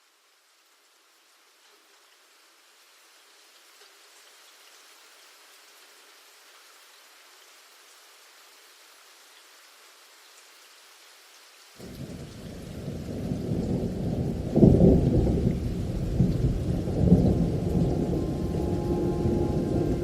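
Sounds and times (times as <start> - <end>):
rain falling: 0.0 - 20.0
thunder rumbling: 11.8 - 20.0.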